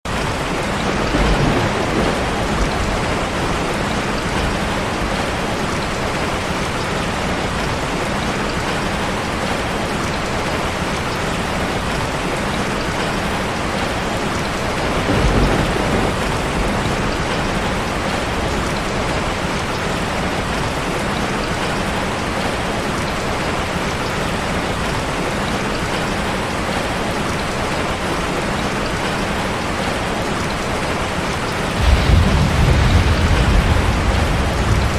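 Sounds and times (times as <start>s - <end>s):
steady rain: 0.0s - 34.9s
low rumbles: 31.8s - 34.9s.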